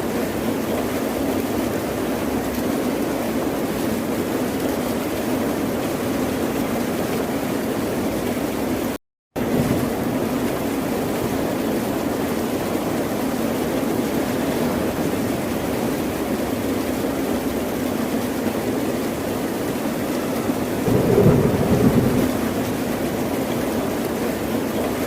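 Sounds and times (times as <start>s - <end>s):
ocean surf washing: 20.4s - 23.9s.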